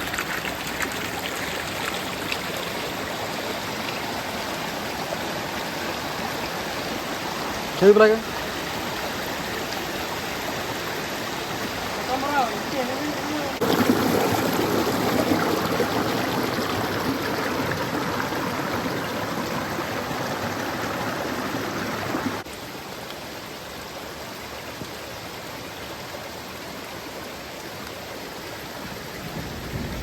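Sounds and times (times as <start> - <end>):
flowing water rushing: 0.0 - 30.0.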